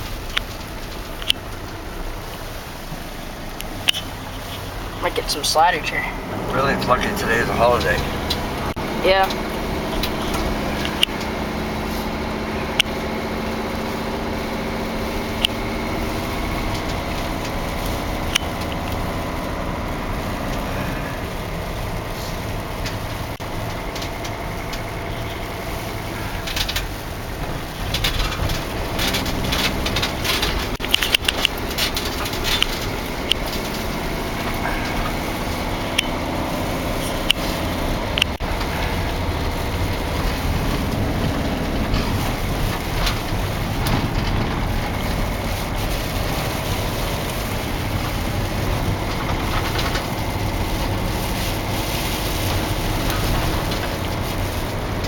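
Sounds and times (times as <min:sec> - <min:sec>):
diesel van engine running: 0:00.0 - 0:55.0
road noise driving on snow: 0:00.0 - 0:55.0
sharp clicks and knocks: 0:07.8 - 0:11.5, 0:26.4 - 0:36.3, 0:37.0 - 0:51.3.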